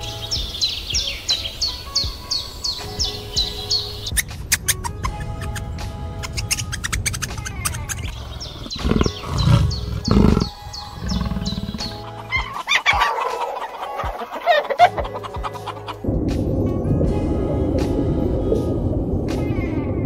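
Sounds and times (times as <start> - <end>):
background music: 0.0 - 20.0
high chirps: 3.0 - 12.9
poultry clucking: 7.8 - 16.0
low rumbling bursts: 16.0 - 20.0.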